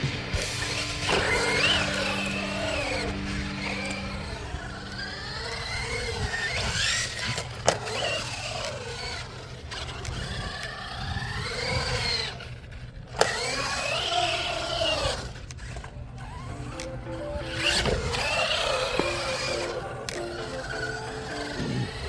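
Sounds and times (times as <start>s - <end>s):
electric motor whining: 0.0s - 22.0s.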